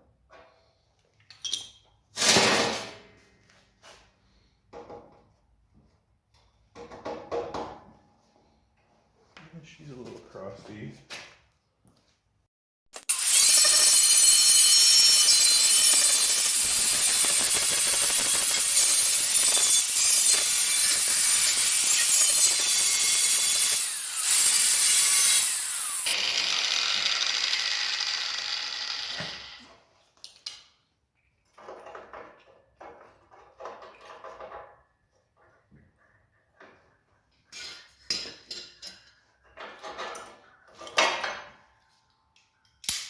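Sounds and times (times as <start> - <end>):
power tool whining: 13.0 - 29.7.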